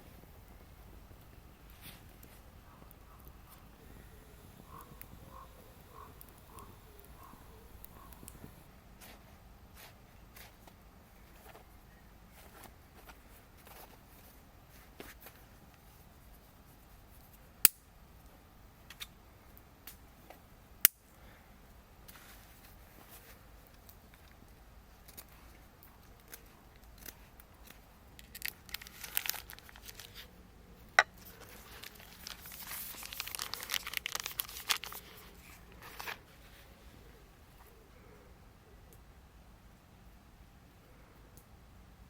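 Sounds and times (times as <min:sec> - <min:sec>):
sharp clicks: 0:00.0 - 0:08.7
crinkling tearing rustles: 0:26.2 - 0:30.3, 0:31.2 - 0:36.8.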